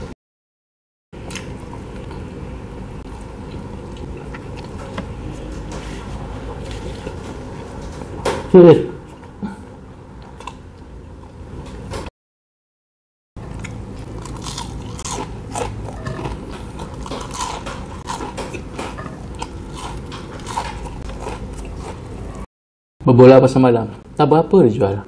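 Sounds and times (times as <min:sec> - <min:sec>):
crunching fried onion rings: 0:13.5 - 0:22.4.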